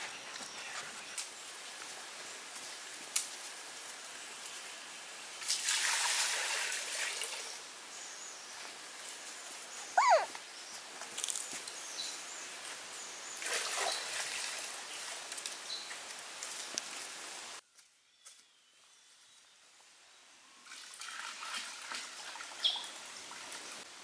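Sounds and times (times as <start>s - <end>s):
puppy yelp: 9.9s - 10.4s.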